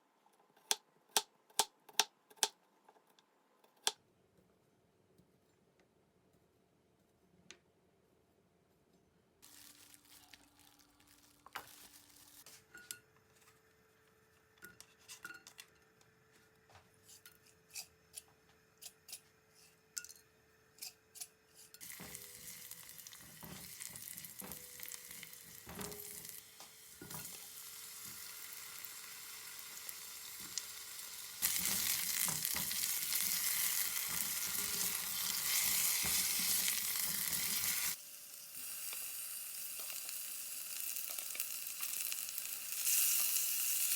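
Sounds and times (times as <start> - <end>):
food sizzling in a frying pan: 21.8 - 43.9.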